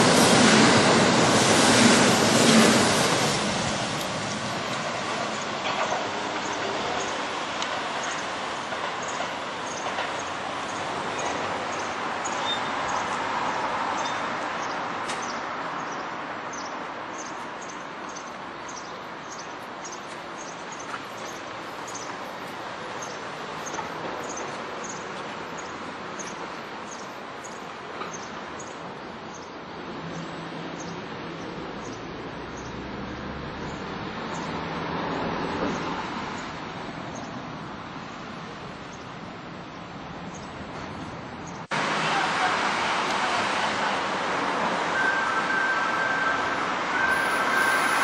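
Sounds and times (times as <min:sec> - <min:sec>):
electric train rumble: 0:00.0 - 0:12.2, 0:47.0 - 0:48.0
short high chirp: 0:47.1 - 0:48.0.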